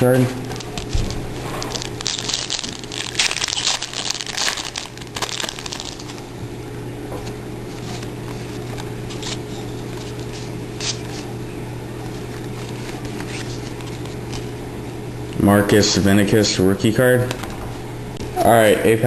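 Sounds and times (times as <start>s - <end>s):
foil wrapper crinkling: 0.4s - 6.4s, 7.6s - 11.4s, 12.0s - 14.6s.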